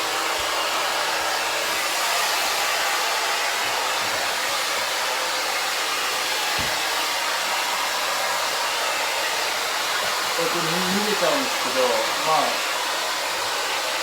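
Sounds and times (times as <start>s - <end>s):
hair dryer blowing: 0.0s - 14.0s.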